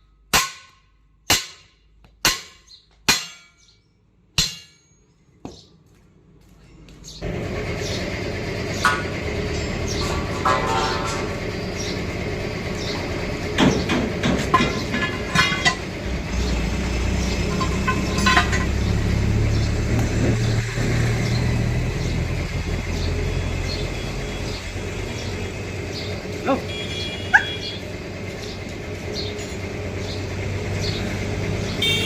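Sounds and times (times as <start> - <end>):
low engine rumble: 5.8 - 32.0
metallic clinks and clanks: 8.9 - 11.4, 14.3 - 16.0, 17.3 - 19.0.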